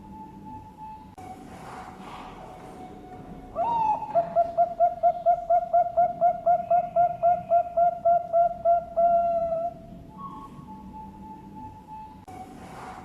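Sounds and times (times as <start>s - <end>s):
dove cooing: 2.0s - 11.1s.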